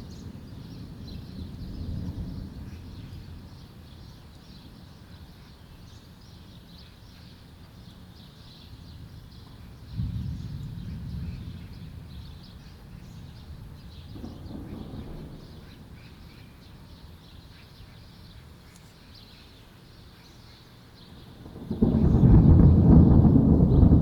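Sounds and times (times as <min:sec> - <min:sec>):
low thunder rumbling: 0:00.0 - 0:03.9, 0:08.8 - 0:17.4, 0:21.1 - 0:24.0
loud thunderclap: 0:09.9 - 0:16.6, 0:21.2 - 0:24.0.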